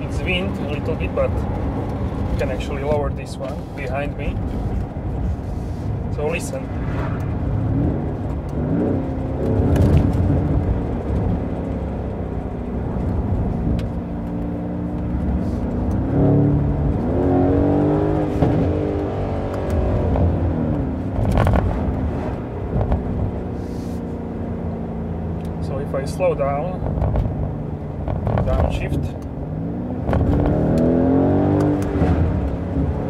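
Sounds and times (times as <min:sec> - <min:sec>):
car engine accelerating hard: 0:06.2 - 0:33.0
exhaust pops: 0:07.1 - 0:12.2, 0:19.6 - 0:23.4, 0:28.0 - 0:29.3, 0:30.0 - 0:30.9.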